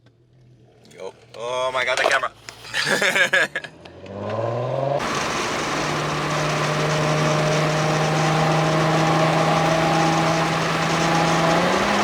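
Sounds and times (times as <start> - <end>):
road noise: 3.9 - 12.0
car engine droning: 4.5 - 12.0.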